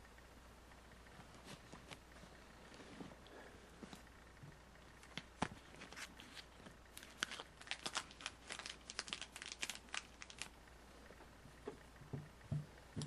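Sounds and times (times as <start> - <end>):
packaging crinkling and crackling: 5.0 - 10.6.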